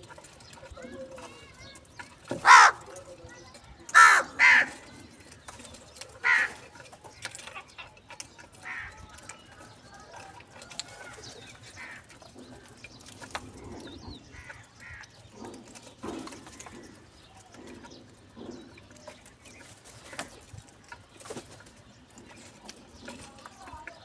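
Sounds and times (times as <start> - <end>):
higher bird calls: 2.2 - 3.1, 3.9 - 5.4, 6.1 - 6.7
birds cooing: 2.2 - 3.2, 3.9 - 6.7.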